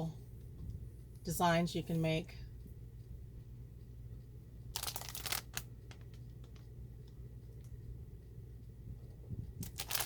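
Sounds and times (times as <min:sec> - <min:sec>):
paper rustle: 0:04.8 - 0:06.6, 0:09.6 - 0:10.0.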